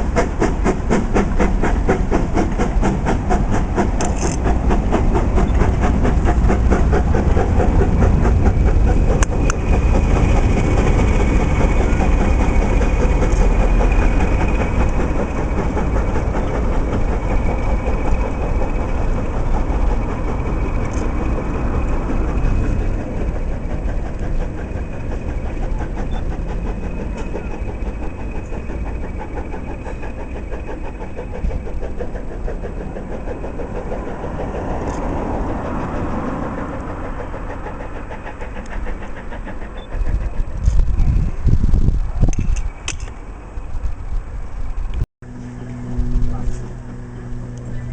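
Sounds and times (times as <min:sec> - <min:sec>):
diesel train engine throbbing: 0:00.0 - 0:47.9.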